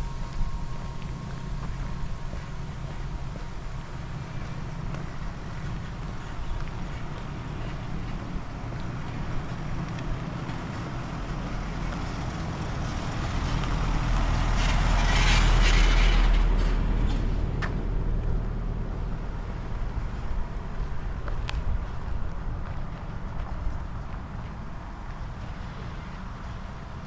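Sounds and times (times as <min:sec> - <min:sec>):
wind rumbling on microphone: 0:00.0 - 0:27.0
vehicle passing by: 0:05.8 - 0:20.8.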